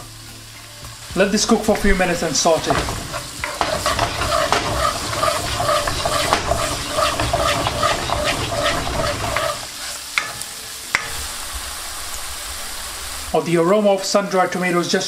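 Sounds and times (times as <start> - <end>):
vegetables sizzling in oil: 0.0 - 14.7
spatula stirring in wok: 1.7 - 11.3.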